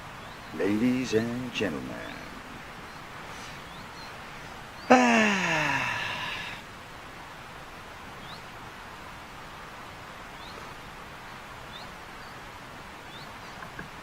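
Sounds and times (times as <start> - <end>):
small bird chirping: 0.0 - 4.9, 8.2 - 8.5, 10.3 - 13.8
outdoor background hiss: 0.0 - 14.0.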